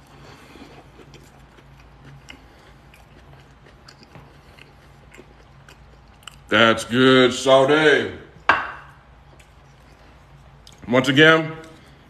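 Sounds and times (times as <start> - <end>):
steady low hum: 0.0 - 12.0
soft chewing clicks: 0.1 - 6.5, 9.1 - 10.9.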